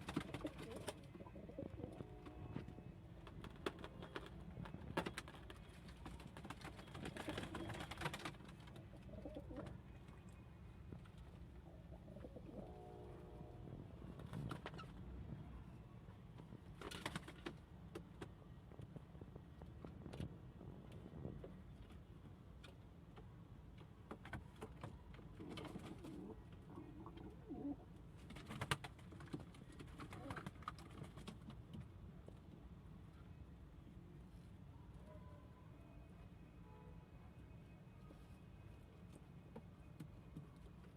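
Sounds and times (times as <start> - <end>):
pigeons cooing: 0.3 - 2.2, 8.9 - 9.7, 11.9 - 12.8, 25.5 - 27.9.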